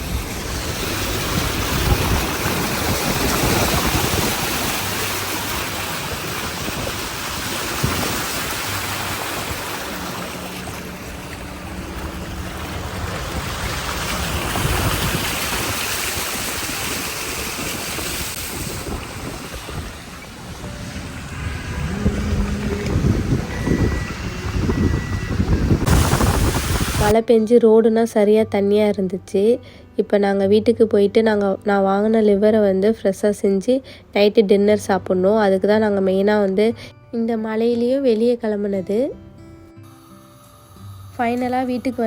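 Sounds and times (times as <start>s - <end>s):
rain: 0.0s - 24.1s, 25.4s - 27.1s
car engine running low: 0.0s - 27.1s
tyres hissing through water: 0.0s - 27.1s, 39.9s - 42.0s.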